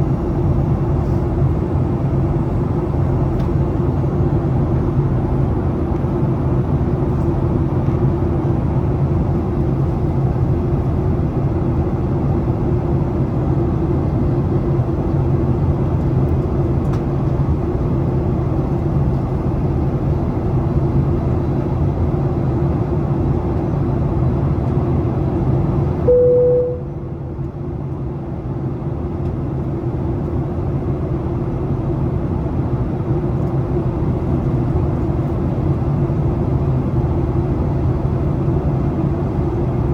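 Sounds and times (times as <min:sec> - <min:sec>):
aircraft engine hum: 0:00.0 - 0:39.9
single tone: 0:26.1 - 0:27.3.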